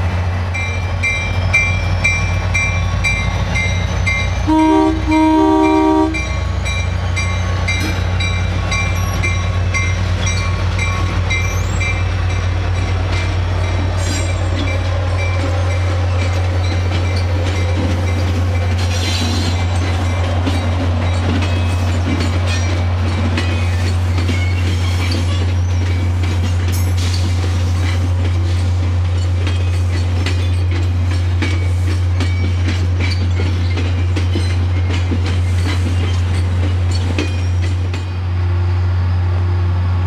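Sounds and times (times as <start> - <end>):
train coaches rumbling and clattering: 0.0 - 40.0
train air horn blasts: 4.4 - 6.3.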